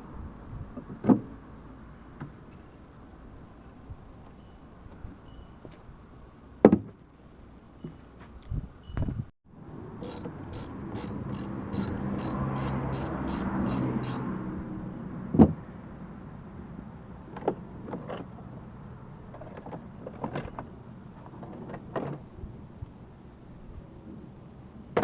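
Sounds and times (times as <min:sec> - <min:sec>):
small motorised tool whirring: 0:10.0 - 0:14.2.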